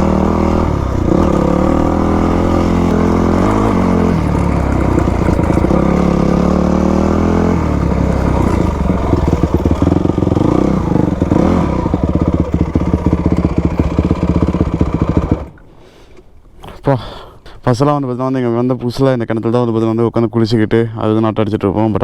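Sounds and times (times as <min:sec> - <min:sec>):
dirt bike engine revving: 0:00.0 - 0:15.6.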